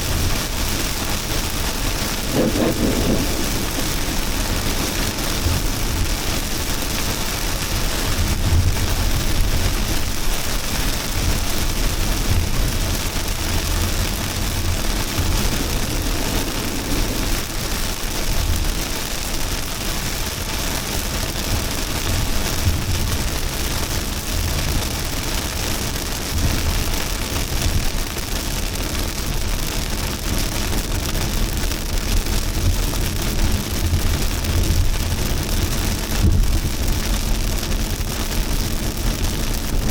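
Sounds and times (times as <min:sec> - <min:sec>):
low rumble: 0:00.0 - 0:25.3
heavy rain hissing: 0:00.0 - 0:39.9.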